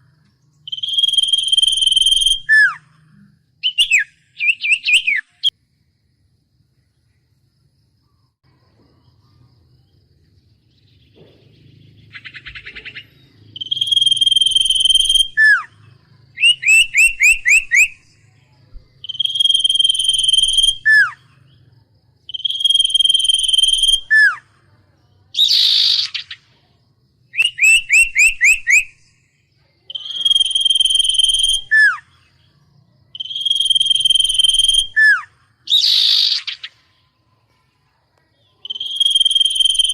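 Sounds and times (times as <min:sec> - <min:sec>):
bird whistling song: 0:00.0 - 0:05.6, 0:10.7 - 0:21.6, 0:22.3 - 0:24.6, 0:25.2 - 0:26.5, 0:27.3 - 0:32.5, 0:33.1 - 0:37.2, 0:38.4 - 0:39.9.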